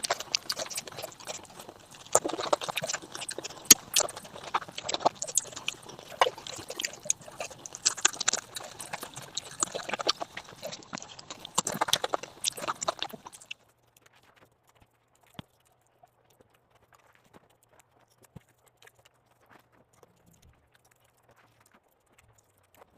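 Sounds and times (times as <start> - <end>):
faint low hum: 0.0 - 13.5
chewing and mouth smacking: 0.0 - 13.7, 14.7 - 22.9.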